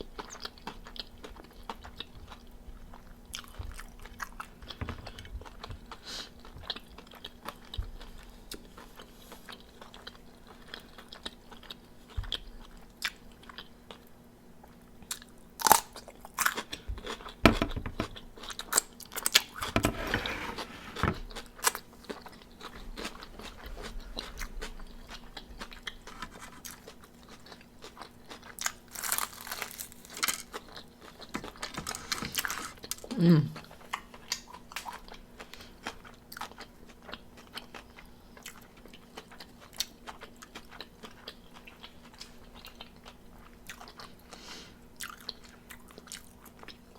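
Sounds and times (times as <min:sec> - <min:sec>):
crunching fried chicken: 0:15.0 - 0:19.7, 0:21.3 - 0:46.9.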